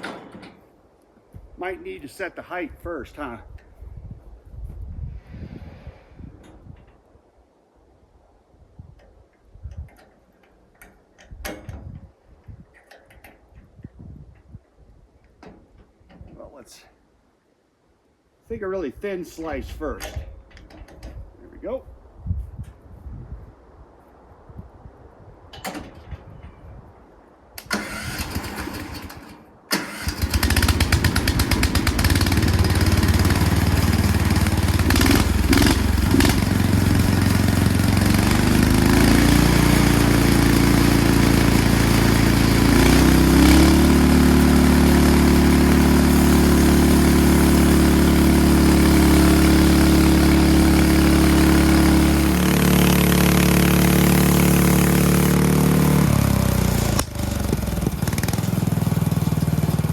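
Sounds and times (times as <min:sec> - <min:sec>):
sawmill engine cutting log: 0:27.6 - 0:59.9.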